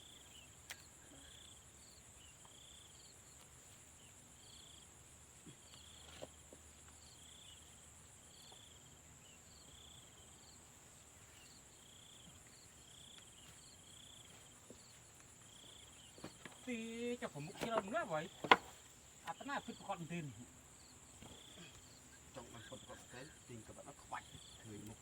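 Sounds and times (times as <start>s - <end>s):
insect chirping: 0.0s - 25.0s
insect trilling: 13.0s - 25.0s
faint knocks: 17.5s - 18.8s.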